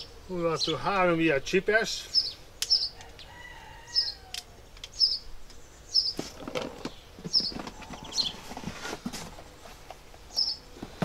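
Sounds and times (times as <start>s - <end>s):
small bird chirping: 0.0s - 0.9s, 2.0s - 8.6s, 9.4s - 10.7s
rustling in cardboard box: 6.1s - 11.0s.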